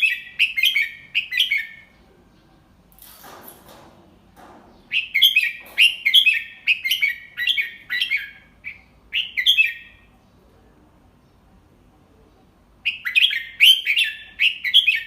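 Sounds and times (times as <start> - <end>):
bulbul chattering song: 4.9 - 10.3, 11.1 - 15.0.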